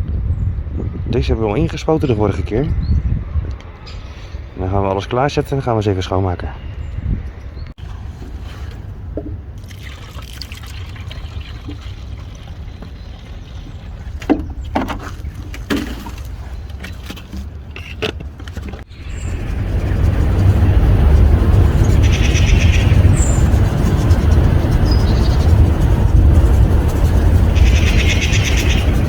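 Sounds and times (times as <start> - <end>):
water trickling and pouring: 9.5 - 16.5
loud rushing noise: 18.9 - 29.0
low rumble: 18.9 - 29.0
cleaning gear knocking: 19.0 - 29.0.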